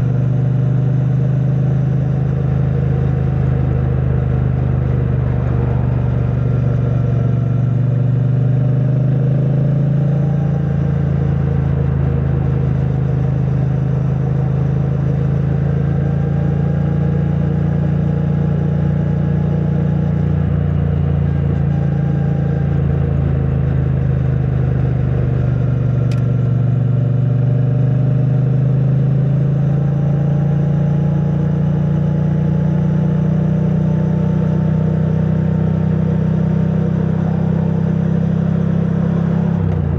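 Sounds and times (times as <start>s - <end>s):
motorcycle engine cruising: 0.0s - 18.6s, 33.2s - 39.9s.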